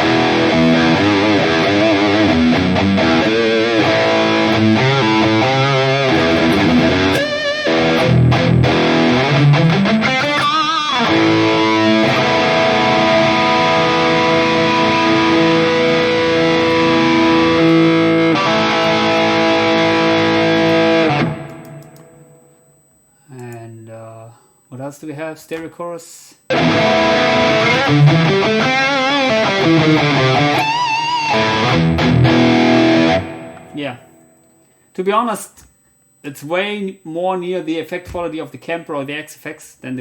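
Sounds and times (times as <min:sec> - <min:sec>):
distorted electric guitar with chorus: 0:00.0 - 0:23.0, 0:26.5 - 0:34.8.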